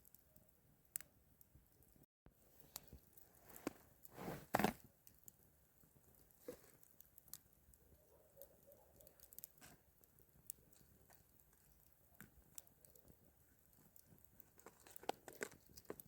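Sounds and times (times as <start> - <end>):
faint clicks and ticks: 0.0 - 4.1, 4.8 - 16.0
rustle: 2.7 - 4.8.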